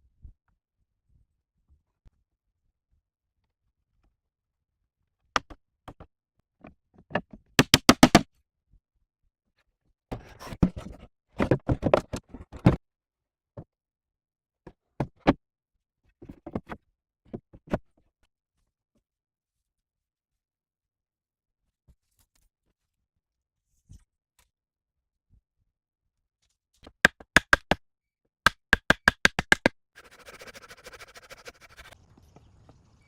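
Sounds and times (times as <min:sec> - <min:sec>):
sharp knocks and taps: 0:27.1 - 0:27.8, 0:28.5 - 0:29.7.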